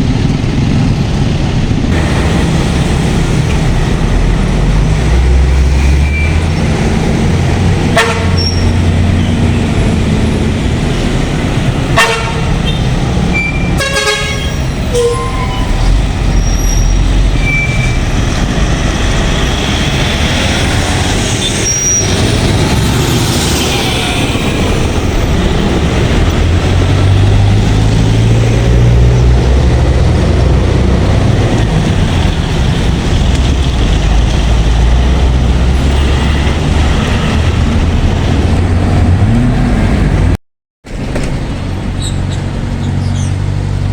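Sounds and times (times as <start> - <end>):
heavy diesel trucks rumbling past: 0.0 - 43.9
vehicle horn tooting: 8.0 - 8.8, 12.0 - 15.9.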